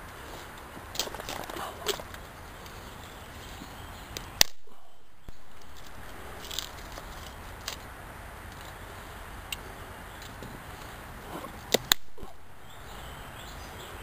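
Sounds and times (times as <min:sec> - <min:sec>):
campfire crackling and popping: 0:00.1 - 0:02.8, 0:04.1 - 0:08.8, 0:09.4 - 0:12.5.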